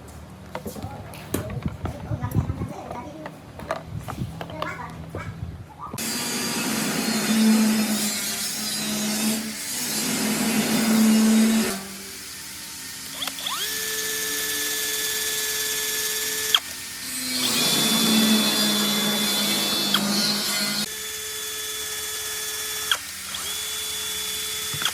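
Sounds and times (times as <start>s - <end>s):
power drill drilling: 6.0s - 24.9s.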